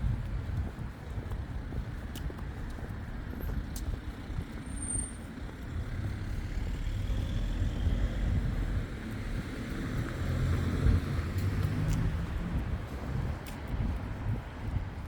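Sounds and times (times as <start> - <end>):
motor vehicle passing: 6.1 - 13.2.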